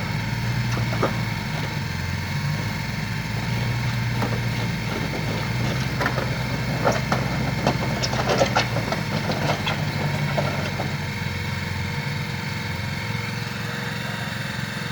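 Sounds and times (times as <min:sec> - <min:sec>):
sharp knocks: 0:00.0 - 0:11.2
engine running steadily: 0:00.0 - 0:14.9.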